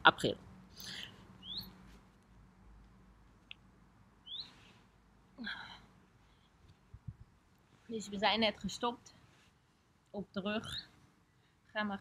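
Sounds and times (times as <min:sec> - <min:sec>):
faint bird chirps: 0:00.9 - 0:01.8, 0:04.2 - 0:04.8.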